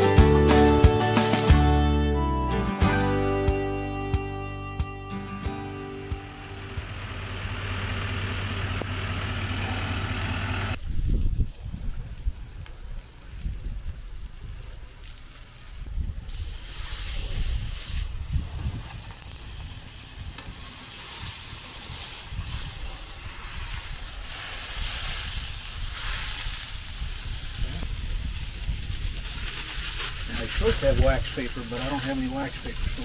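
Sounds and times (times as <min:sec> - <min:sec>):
meat sizzling on hot surface: 0:12.7 - 0:33.0.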